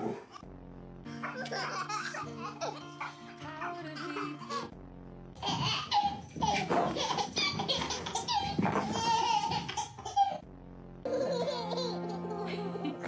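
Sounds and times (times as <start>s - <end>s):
person laughing heartily: 1.2s - 3.3s, 5.4s - 10.4s, 11.1s - 13.0s.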